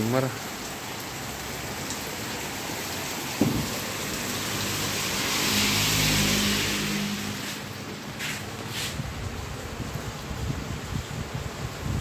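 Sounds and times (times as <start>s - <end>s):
vehicle passing on wet road: 0.0s - 11.4s
heavy rain: 0.0s - 12.0s
sharp knock: 3.4s - 4.0s.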